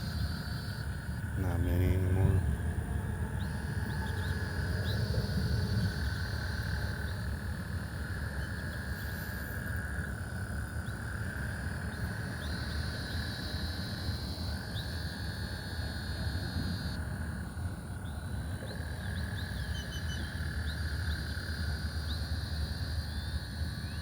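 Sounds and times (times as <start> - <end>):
steady low rumble: 0.0 - 12.7
frogs trilling: 0.0 - 24.0.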